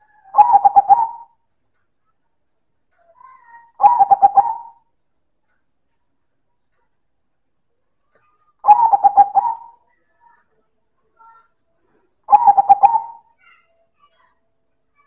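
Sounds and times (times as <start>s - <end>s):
dove cooing: 0.0s - 1.4s, 3.8s - 4.8s, 8.6s - 9.8s, 12.3s - 13.3s.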